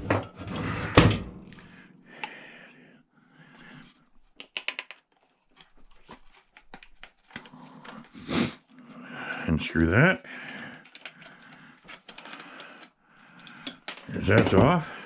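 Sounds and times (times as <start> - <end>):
hand tools clicking on metal: 6.0 - 14.8.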